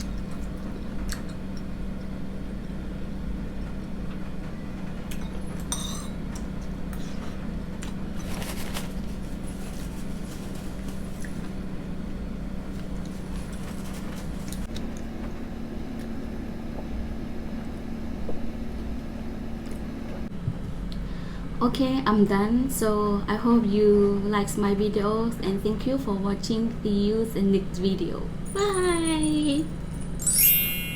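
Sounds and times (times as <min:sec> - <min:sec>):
steady mechanical hum: 0:00.0 - 0:30.9
tableware clinking: 0:05.2 - 0:06.2.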